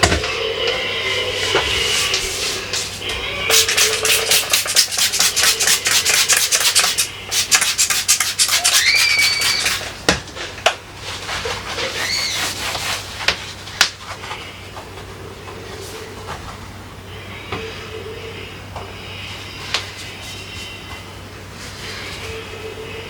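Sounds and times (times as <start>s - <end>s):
hand scrubbing a surface: 1.1s - 9.9s, 11.1s - 13.3s
short high squeaks: 8.6s - 9.8s.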